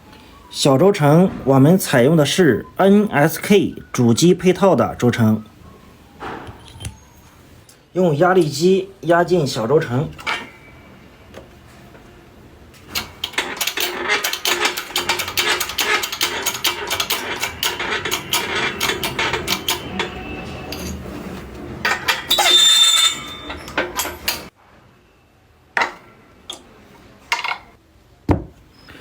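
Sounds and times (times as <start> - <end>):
press clicking and ratcheting: 12.9 - 21.0
harsh metallic grating: 13.8 - 24.5.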